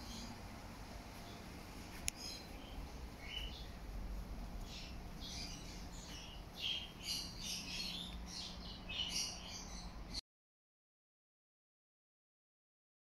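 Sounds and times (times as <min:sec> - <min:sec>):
low steady hum: 0:00.0 - 0:10.2
small birds chirping: 0:00.0 - 0:10.2.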